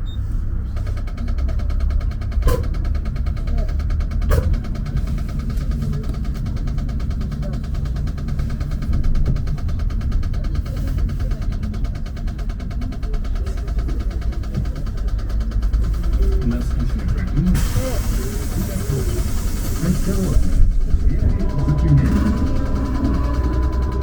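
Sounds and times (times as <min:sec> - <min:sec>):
trolleybus running: 0:00.0 - 0:24.0
thin whine: 0:20.9 - 0:24.0.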